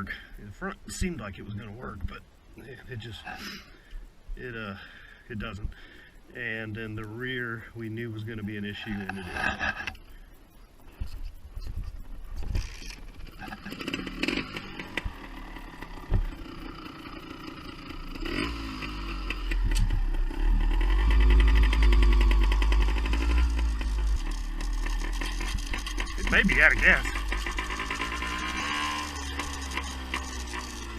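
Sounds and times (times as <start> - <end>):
motorbike two-stroke engine: 12.5 - 30.9
rattling chain: 21.5 - 30.9.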